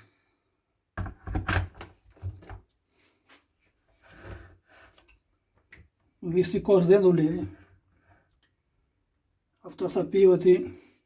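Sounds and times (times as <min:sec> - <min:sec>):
plastic kettle clunking on base: 0:01.0 - 0:02.6.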